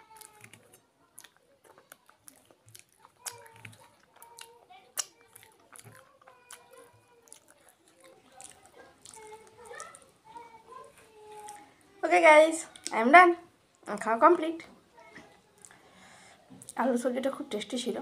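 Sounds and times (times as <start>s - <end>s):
lip smacking: 0.0s - 11.8s, 15.5s - 15.8s
wet chewing: 0.0s - 11.8s
finger licking: 0.1s - 10.1s.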